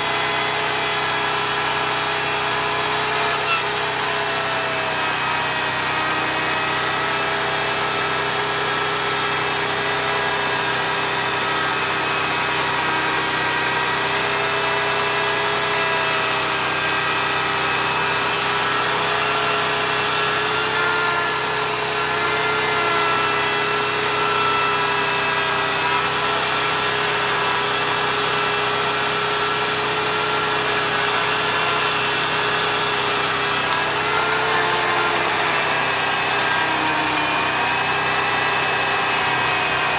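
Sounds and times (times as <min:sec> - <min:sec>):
electric chainsaw cutting: 0:00.0 - 0:39.9
portable generator running: 0:00.0 - 0:39.9.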